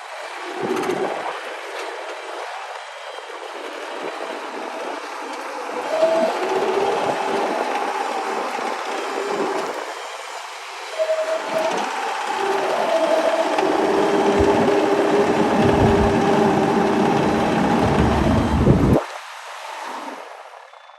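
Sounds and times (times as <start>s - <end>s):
excavator engine and hydraulics whining: 5.7s - 19.0s
heavy low rumble: 13.8s - 19.0s.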